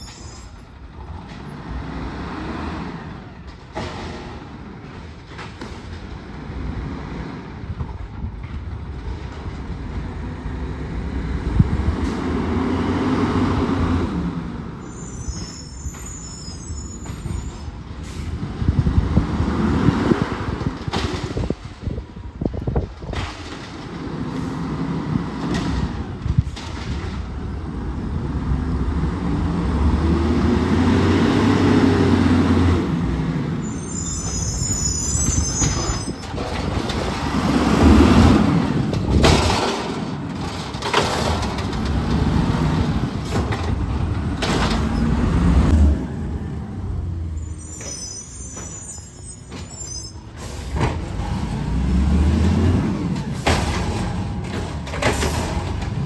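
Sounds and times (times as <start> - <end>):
garbage truck engine revving: 27.6 - 33.6, 36.4 - 47.6, 50.4 - 56.0
high-pitched squeals: 33.6 - 36.4, 47.4 - 50.4.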